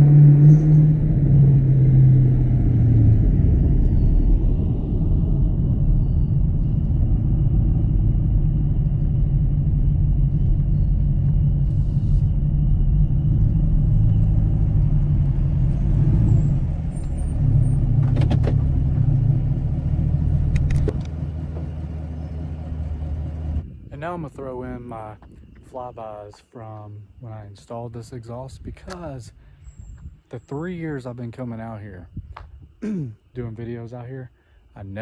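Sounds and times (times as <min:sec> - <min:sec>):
car engine drone from inside cabin: 0:00.0 - 0:23.7.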